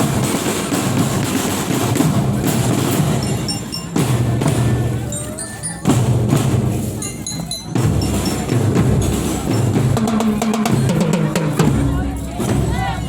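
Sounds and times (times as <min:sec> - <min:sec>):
snare and bass drums beating: 0:00.0 - 0:05.2, 0:05.8 - 0:13.0
high bell notes: 0:03.0 - 0:04.2, 0:04.9 - 0:09.6.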